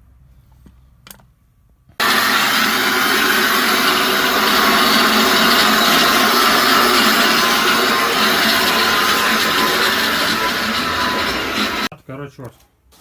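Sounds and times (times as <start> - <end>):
angle grinder cutting steel: 2.0 - 11.9.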